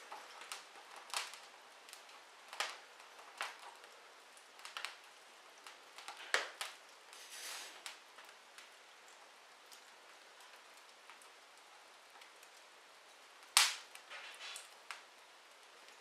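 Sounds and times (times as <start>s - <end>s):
wood fire crackling: 0.0s - 16.0s
fire hiss: 6.4s - 8.0s.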